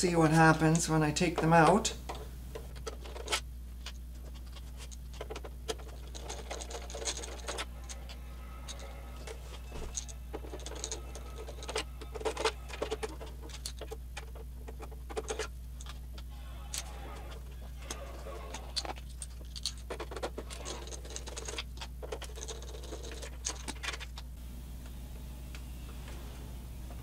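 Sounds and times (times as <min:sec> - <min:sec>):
faint low hum: 0:00.0 - 0:27.0.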